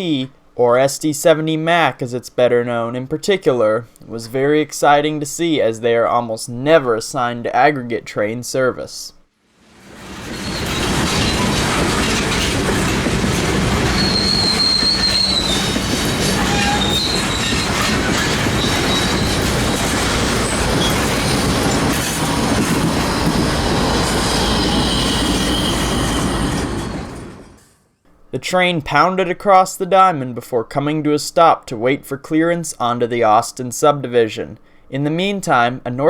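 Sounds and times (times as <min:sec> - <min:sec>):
train wheels clattering: 0:09.8 - 0:27.8
high wheel squeal: 0:10.0 - 0:27.8.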